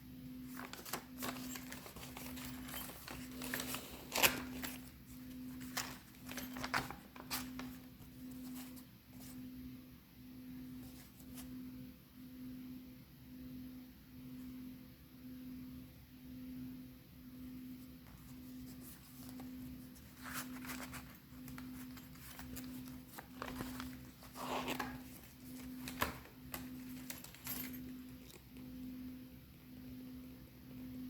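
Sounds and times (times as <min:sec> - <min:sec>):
paper pages rustling: 0:00.5 - 0:09.4, 0:10.8 - 0:11.5, 0:18.0 - 0:28.5.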